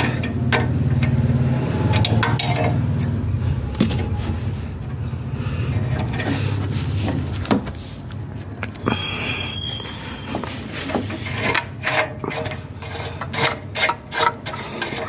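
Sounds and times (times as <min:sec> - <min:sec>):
car engine running: 0:00.0 - 0:08.8.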